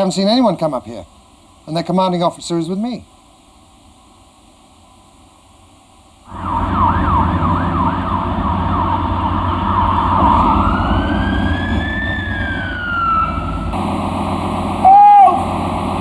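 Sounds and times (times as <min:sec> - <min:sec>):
emergency vehicle siren: 0:06.3 - 0:16.0
heavy low rumble: 0:06.3 - 0:16.0.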